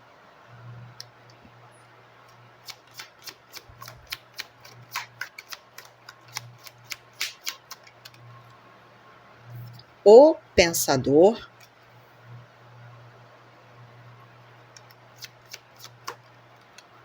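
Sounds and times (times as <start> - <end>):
cards being shuffled: 2.7 - 8.2, 14.8 - 16.3.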